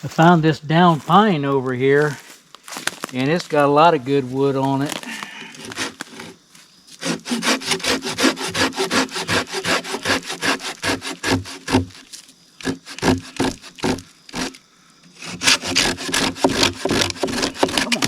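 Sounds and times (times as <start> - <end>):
hand saw cutting wood: 5.6 - 6.4, 7.0 - 18.0.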